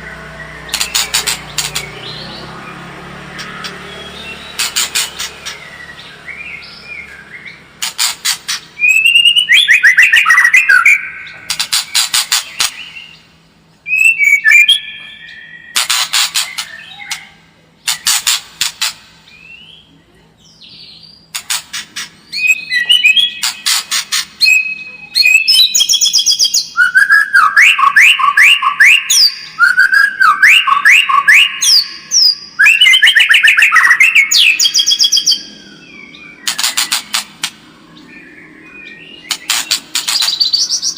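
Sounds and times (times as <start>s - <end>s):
bird singing with whistles and clicks: 0.0s - 19.9s, 20.5s - 40.9s.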